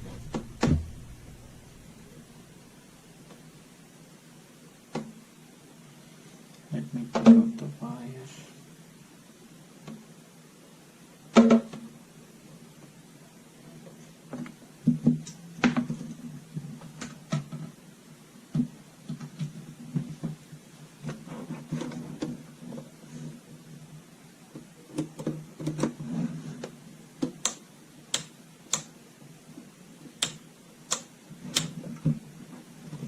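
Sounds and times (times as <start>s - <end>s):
steady low hum: 0.0s - 4.8s
plastic parts clicking and knocking: 24.6s - 26.0s.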